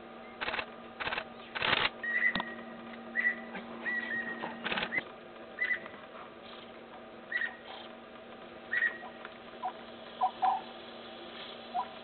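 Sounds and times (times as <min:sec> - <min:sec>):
faint steady hum: 0:00.0 - 0:12.0
bird calls: 0:01.4 - 0:08.0, 0:08.7 - 0:12.0.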